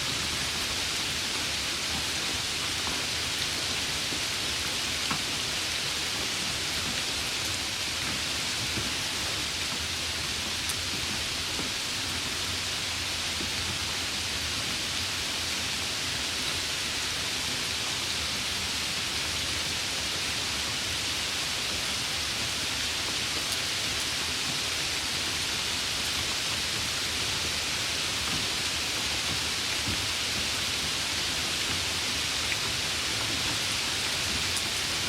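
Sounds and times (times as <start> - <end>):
steady rain hiss: 0.0 - 35.0.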